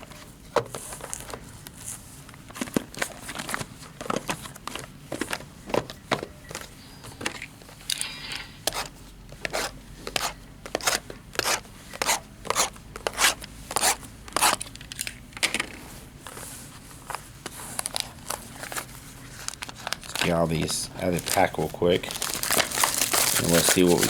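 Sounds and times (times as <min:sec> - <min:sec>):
card packs tearing and crinkling: 0:17.5 - 0:24.0.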